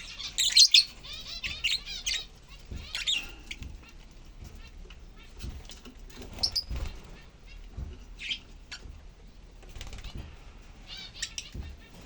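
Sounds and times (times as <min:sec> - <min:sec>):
lovebirds chirping: 0:00.0 - 0:08.9, 0:09.8 - 0:12.0.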